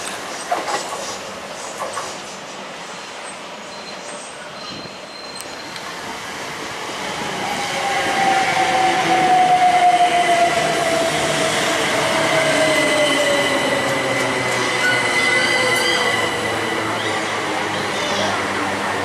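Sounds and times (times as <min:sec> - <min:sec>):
passing train: 0:00.0 - 0:19.0.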